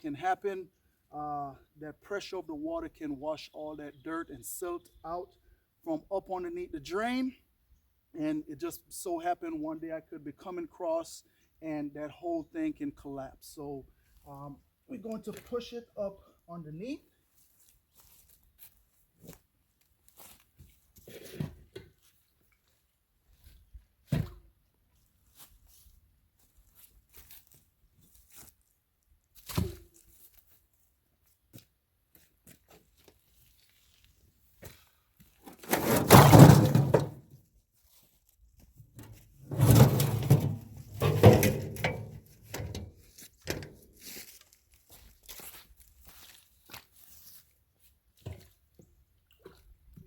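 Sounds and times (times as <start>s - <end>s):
bricks scraping and knocking: 35.6s - 37.2s, 39.5s - 42.1s
bricks thunking down: 35.6s - 37.2s.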